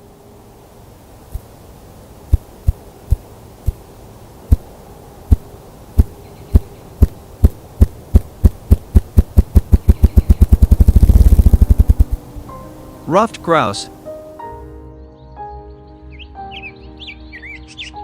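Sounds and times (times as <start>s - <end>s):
grouse drumming wing-beat thumps: 5.3s - 13.7s.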